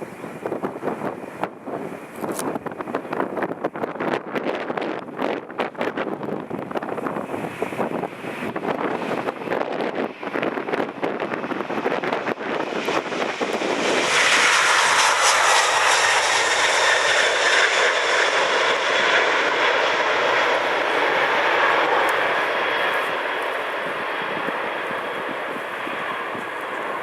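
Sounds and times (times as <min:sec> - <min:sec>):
jet engines roaring with high whine: 0:00.0 - 0:27.0
wind buffeting microphone: 0:00.0 - 0:27.0.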